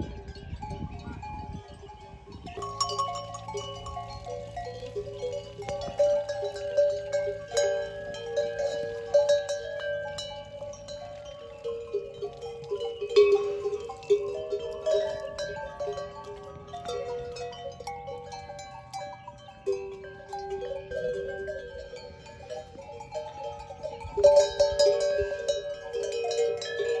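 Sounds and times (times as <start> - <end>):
goat and sheep neck bells ringing: 0.0 - 27.0.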